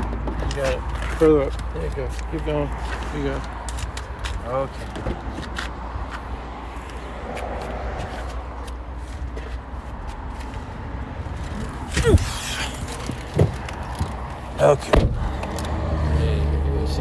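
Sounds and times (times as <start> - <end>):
car engine idling: 11.1 - 17.0.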